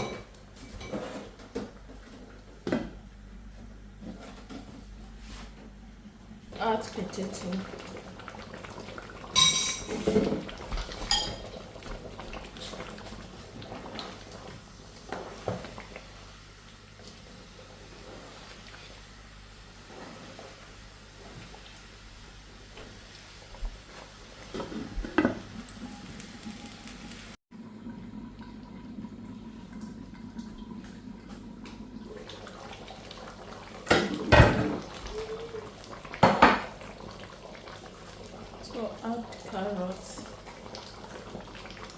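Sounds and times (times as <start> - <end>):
pots and utensils clattering: 0.0 - 1.7, 9.2 - 12.9, 33.8 - 35.0
metal clanking on cooking pot: 9.4 - 10.4.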